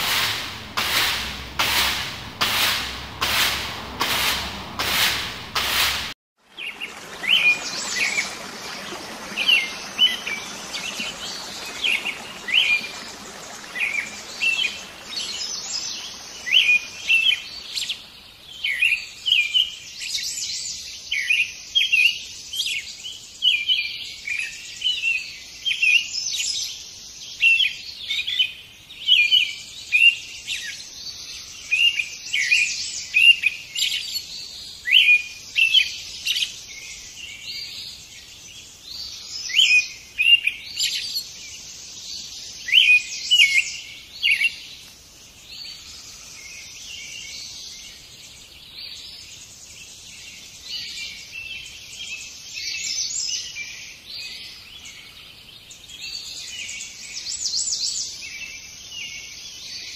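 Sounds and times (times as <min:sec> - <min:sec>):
birds chirping: 0:06.6 - 0:19.1.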